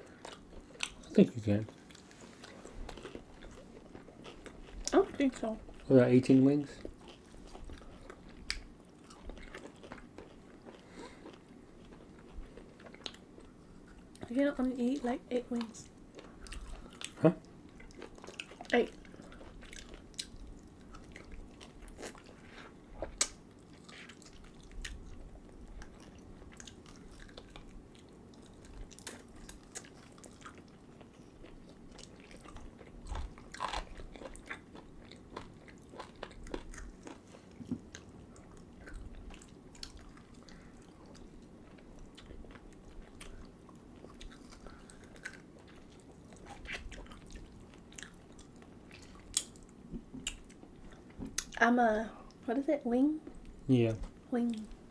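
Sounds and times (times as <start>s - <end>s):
chewing and biting food: 0.0s - 5.9s, 6.7s - 14.3s, 15.6s - 51.6s
wet mouth clicks and smacks: 23.2s - 23.4s.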